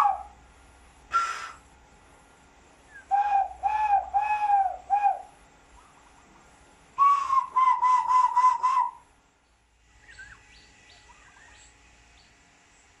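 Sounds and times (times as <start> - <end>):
bird whistled notes: 10.0 - 11.7.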